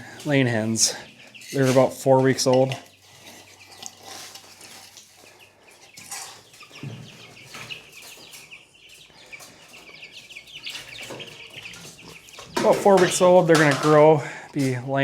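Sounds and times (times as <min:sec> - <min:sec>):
chicks peeping and chirping: 0:00.0 - 0:15.0.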